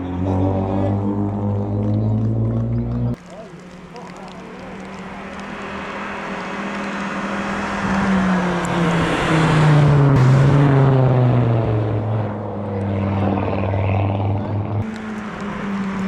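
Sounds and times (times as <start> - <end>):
race car passing: 0.0 - 16.0
tyres hissing on wet road: 3.2 - 9.8.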